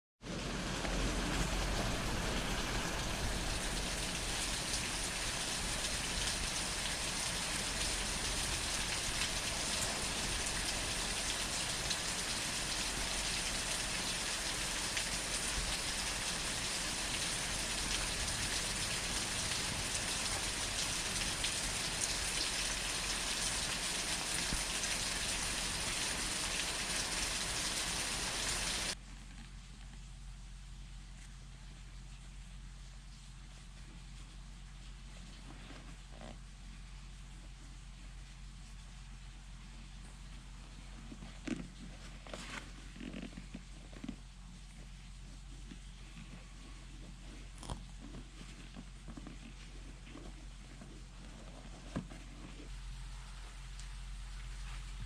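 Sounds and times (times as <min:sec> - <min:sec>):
steady rain falling: 0:00.2 - 0:29.0, 0:48.6 - 0:55.0.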